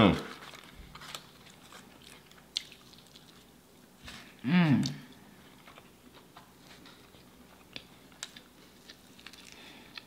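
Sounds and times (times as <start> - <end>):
faint chewing: 0.3 - 10.0.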